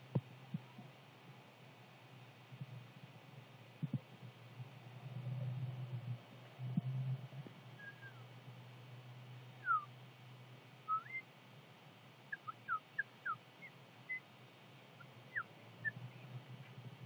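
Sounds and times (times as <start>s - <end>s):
bird chirping: 7.8s - 8.3s, 9.6s - 9.9s, 10.9s - 11.3s, 12.3s - 14.3s, 15.0s - 16.8s.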